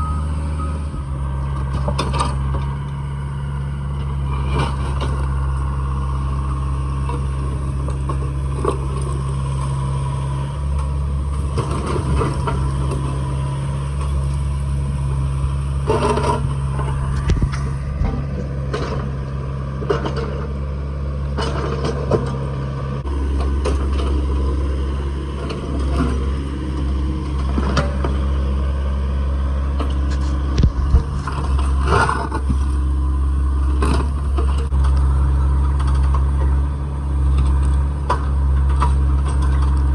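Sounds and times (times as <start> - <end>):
heavy equipment engine running: 0.0 - 39.9
broken concrete scraping and clattering: 29.8 - 32.8.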